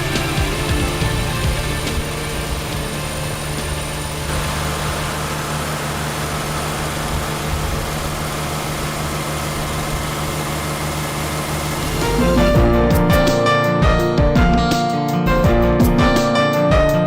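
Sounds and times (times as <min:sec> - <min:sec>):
tractor engine running steadily: 0:00.0 - 0:13.1.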